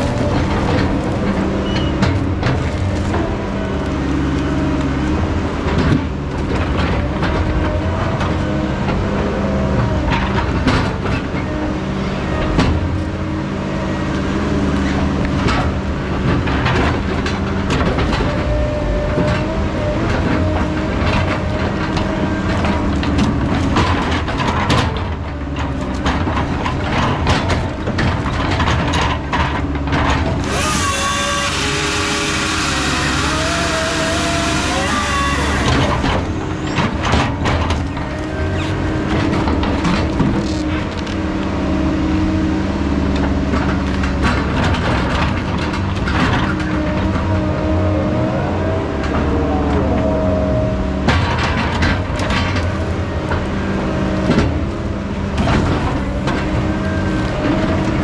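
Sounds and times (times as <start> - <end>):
machinery clanks and knocks: 0.0 - 13.6, 14.8 - 42.2, 43.0 - 47.8, 50.9 - 58.0
diesel engine running: 0.0 - 58.0
wavering machine whine: 30.5 - 36.6.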